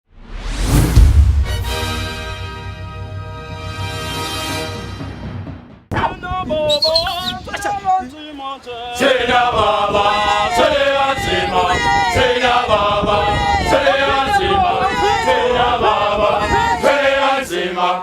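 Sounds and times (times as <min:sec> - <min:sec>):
music: 0:00.2 - 0:06.5
a cappella choir singing: 0:08.4 - 0:18.0.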